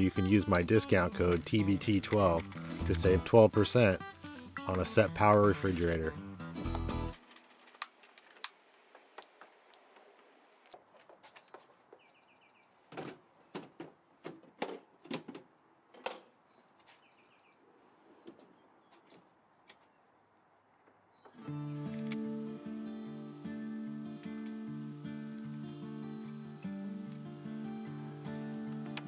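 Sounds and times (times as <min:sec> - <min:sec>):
bird chirping: 0:10.9 - 0:12.9, 0:16.2 - 0:17.7, 0:20.8 - 0:22.0.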